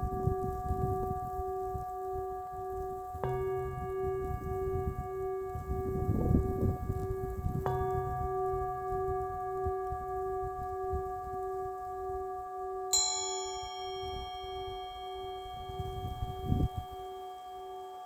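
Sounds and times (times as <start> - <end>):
singing bowl ringing: 0.0 - 18.0
singing bowl strike: 12.9 - 18.0.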